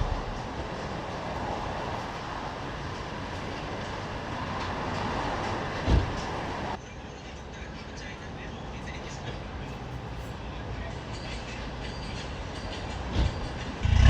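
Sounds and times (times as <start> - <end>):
short low thump: 0.0 - 0.5
car road and drivetrain rumble: 0.0 - 6.8.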